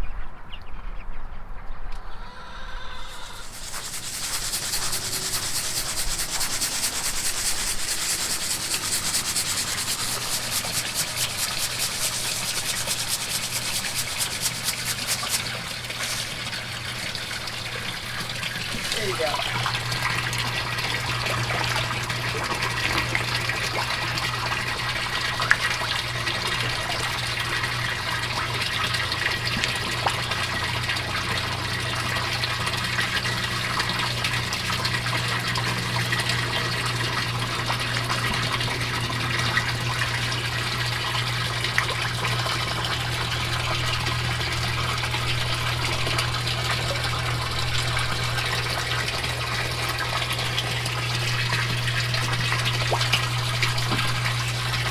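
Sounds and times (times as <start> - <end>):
low steady hum: 0.0 - 54.9
water running and splashing: 3.1 - 54.9.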